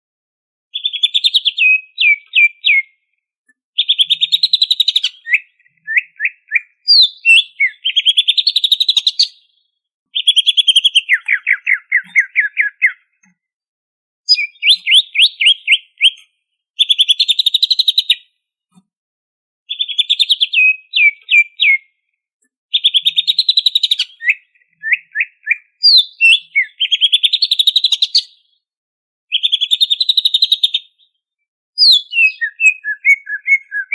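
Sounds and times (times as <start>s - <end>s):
bird singing chattering trills: 3.8s - 9.3s, 10.2s - 13.1s, 14.3s - 16.2s, 22.8s - 28.2s, 31.8s - 33.9s.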